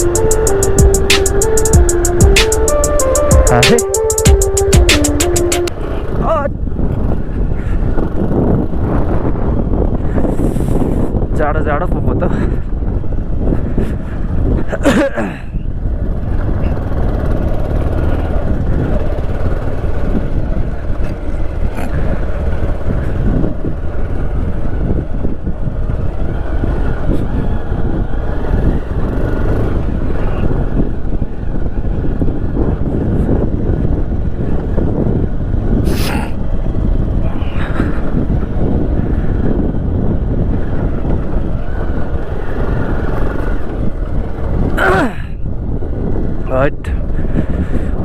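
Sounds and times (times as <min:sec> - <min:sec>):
short sharp sound: 0:00.0 - 0:05.7
motorcycle engine rumble: 0:00.0 - 0:11.4, 0:12.3 - 0:48.0
wind buffeting microphone: 0:05.7 - 0:48.0.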